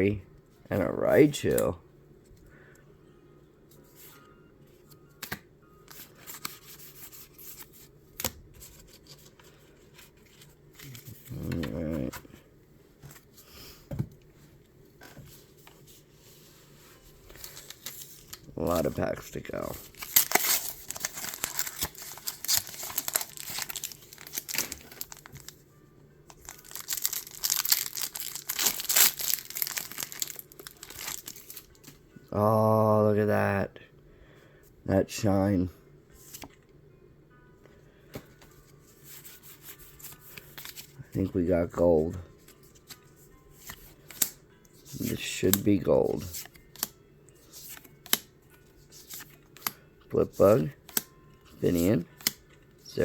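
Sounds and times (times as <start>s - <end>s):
rustling of card packaging: 5.2s - 12.4s, 15.1s - 25.6s, 26.3s - 32.0s, 38.2s - 53.0s
packaging crinkled and torn open: 19.7s - 25.6s, 26.3s - 31.7s.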